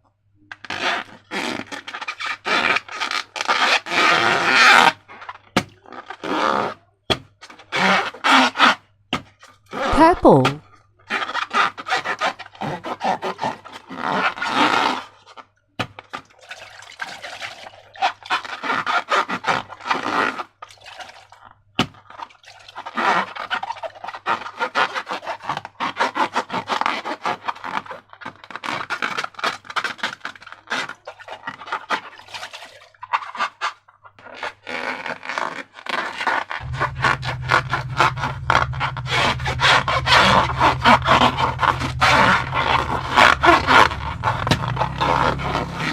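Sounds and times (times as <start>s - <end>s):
slime squelching and crackling: 36.6s - 45.9s
steady low hum: 36.6s - 45.9s.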